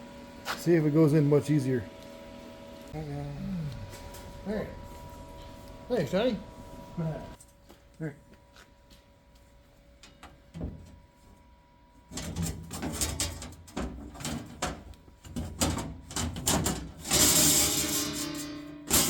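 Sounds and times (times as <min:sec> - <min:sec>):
metal plate scraping and clunking: 0:12.1 - 0:19.0.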